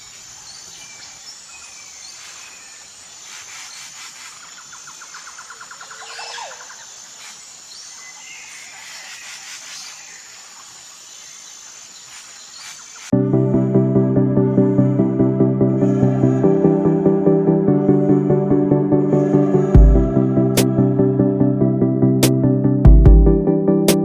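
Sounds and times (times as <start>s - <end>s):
birds chirping and calling: 0.0s - 13.1s.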